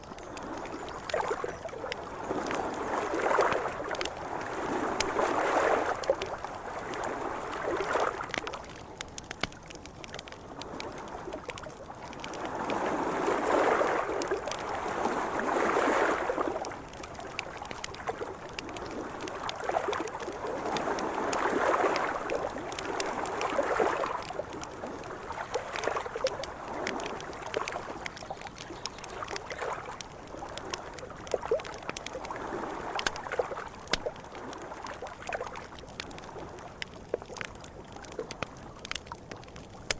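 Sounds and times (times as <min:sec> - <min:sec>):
campfire crackling and popping: 0:00.0 - 0:39.9
waves lapping against riverbank: 0:00.0 - 0:39.9.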